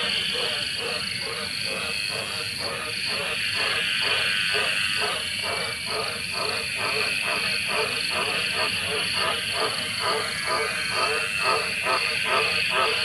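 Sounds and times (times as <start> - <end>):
frogs croaking: 0.0 - 13.0
high-pitched frog chorus: 0.0 - 13.0.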